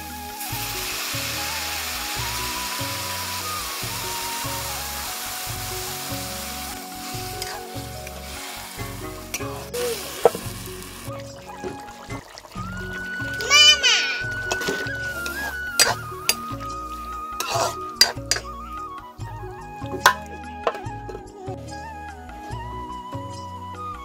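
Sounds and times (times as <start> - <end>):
food sizzling in hot oil: 0.0 - 18.5.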